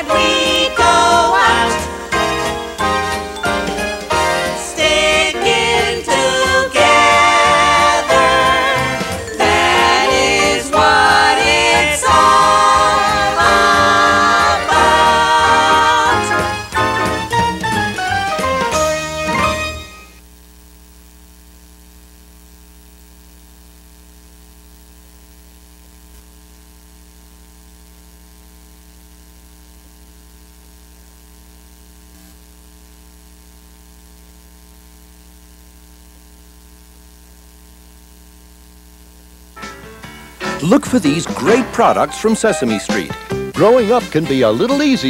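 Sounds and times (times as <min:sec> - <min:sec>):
song music: 0:00.0 - 0:20.2, 0:39.6 - 0:45.0
mains hum: 0:00.0 - 0:45.0.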